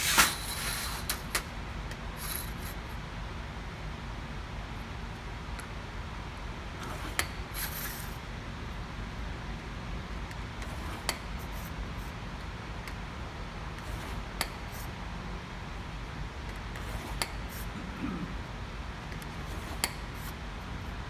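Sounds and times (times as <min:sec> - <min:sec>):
scratchy strokes on sheet metal: 0:00.0 - 0:01.4.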